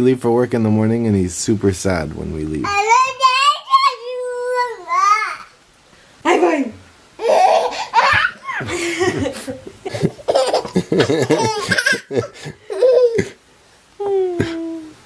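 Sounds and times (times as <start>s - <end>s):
baby giggling: 7.2s - 13.4s.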